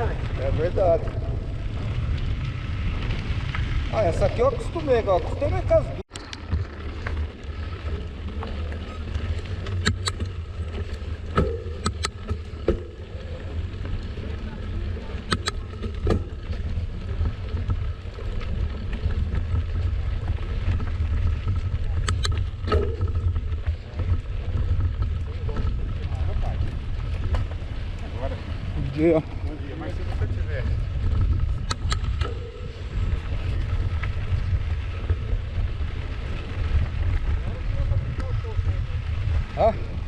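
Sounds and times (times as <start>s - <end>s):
wind buffeting microphone: 0.0s - 6.7s, 7.6s - 40.0s
bike tyre noise: 0.0s - 40.0s
sharp clicks: 9.7s - 10.3s, 11.4s - 12.4s, 15.3s - 16.1s, 22.0s - 22.8s, 31.6s - 32.4s.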